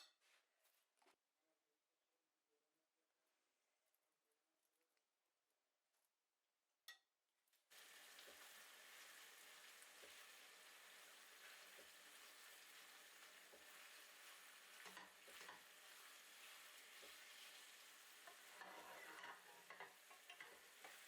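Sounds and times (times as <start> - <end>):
food sizzling in a pan: 7.7 - 21.0
scraping in pan: 13.6 - 21.0.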